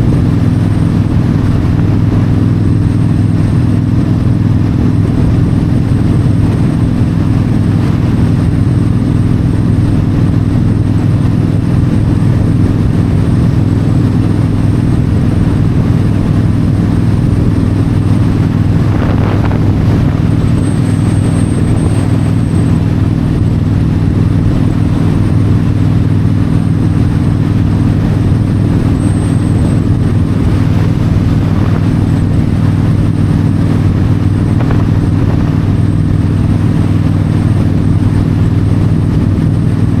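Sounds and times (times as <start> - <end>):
motorcycle engine cruising: 0.0 - 40.0
wind noise: 0.0 - 40.0.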